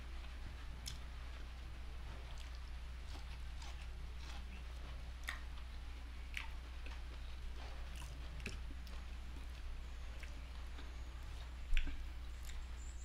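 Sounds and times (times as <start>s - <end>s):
steady low hum: 0.0s - 13.0s
person chewing food: 0.2s - 1.1s, 2.2s - 13.0s
wet mouth clicks and smacks: 5.2s - 5.6s, 6.3s - 6.6s, 11.7s - 12.6s.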